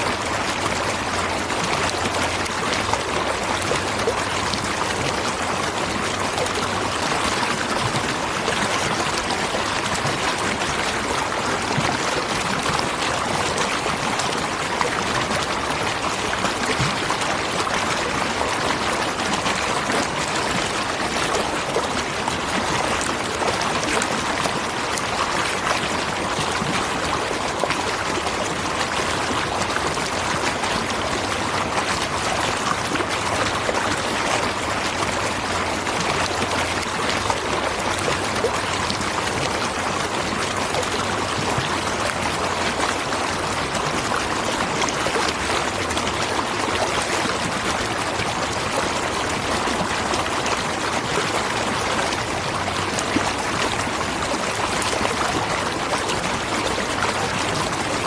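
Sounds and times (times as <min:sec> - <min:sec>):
water rushing over rocks: 0:00.0 - 0:58.0.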